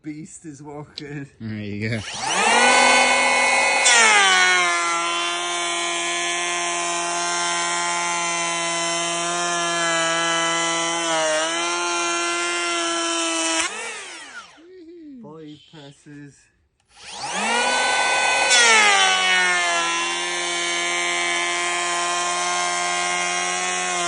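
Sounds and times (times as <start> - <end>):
electric planer motor whining: 2.0 - 14.6, 16.9 - 24.0.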